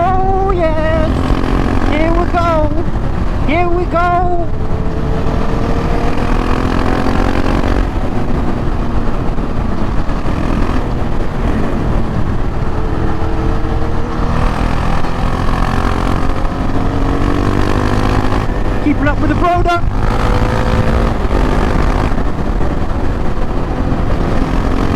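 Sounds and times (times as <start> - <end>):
low wind rumble: 0.0 - 24.9
motorcycle engine accelerating: 0.0 - 24.9.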